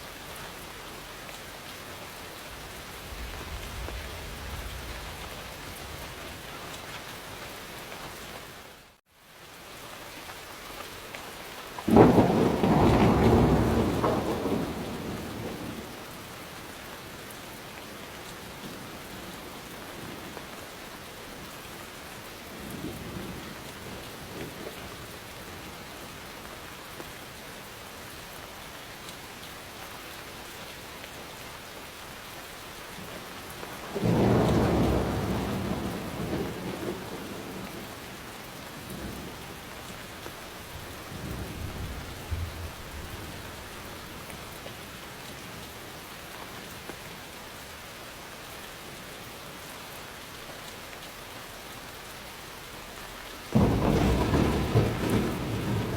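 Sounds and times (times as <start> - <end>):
steady rain falling: 0.0 - 55.9
thunder rumbling: 2.4 - 7.4, 11.9 - 16.0, 33.8 - 38.2, 40.2 - 44.5, 53.6 - 55.9.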